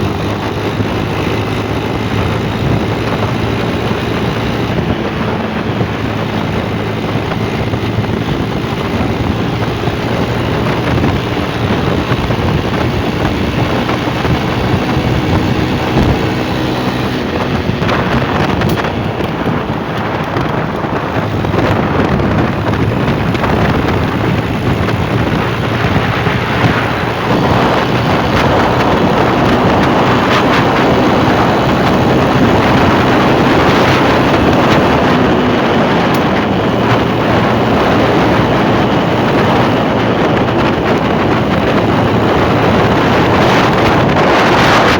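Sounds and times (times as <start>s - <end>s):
motorcycle engine running: 0.0s - 44.9s
wind noise on microphone: 0.0s - 44.9s.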